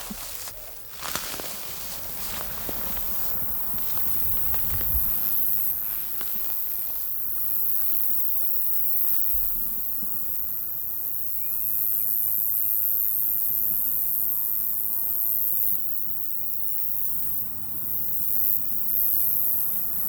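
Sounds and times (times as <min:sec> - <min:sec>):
faint footsteps: 0:00.0 - 0:08.2
crickets chirring: 0:00.0 - 0:20.0.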